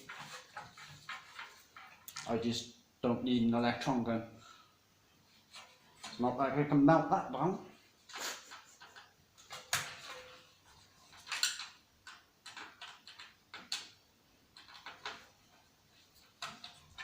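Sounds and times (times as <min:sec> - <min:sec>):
plastic and metal parts handled: 0:00.0 - 0:02.3, 0:08.4 - 0:14.0, 0:14.6 - 0:17.0.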